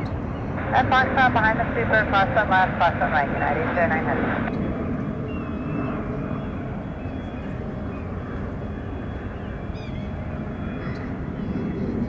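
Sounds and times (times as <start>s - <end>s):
jet engines rumbling: 0.0s - 7.0s.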